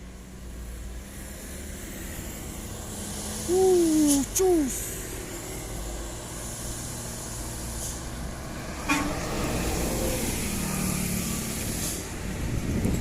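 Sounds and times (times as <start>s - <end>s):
truck diesel engine labouring: 2.0s - 13.0s
truck horn toot: 8.9s - 9.2s.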